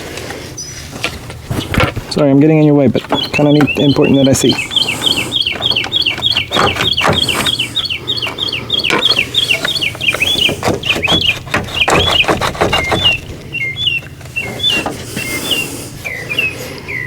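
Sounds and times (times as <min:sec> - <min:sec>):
bird chirping: 0:00.6 - 0:17.0
sharp clicks and knocks: 0:02.9 - 0:15.0.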